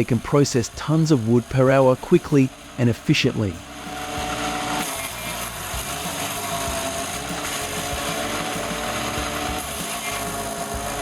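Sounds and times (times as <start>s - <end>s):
wood chipper grinding: 0.0s - 11.0s.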